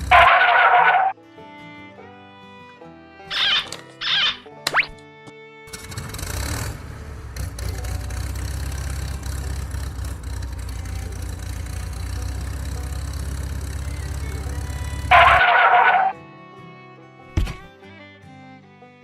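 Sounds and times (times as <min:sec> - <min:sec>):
engine starting and idling: 0:00.0 - 0:00.8, 0:05.7 - 0:16.1.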